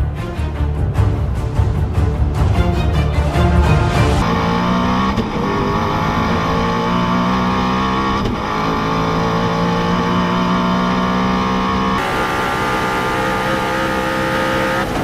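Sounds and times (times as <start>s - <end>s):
car engine at high revs: 4.0s - 15.0s.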